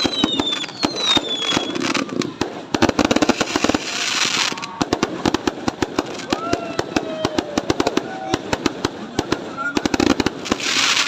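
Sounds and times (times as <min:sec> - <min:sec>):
falling firework whistle: 0:00.0 - 0:02.4
firework hiss: 0:00.0 - 0:11.0
fireworks bangs and crackles: 0:00.0 - 0:11.0.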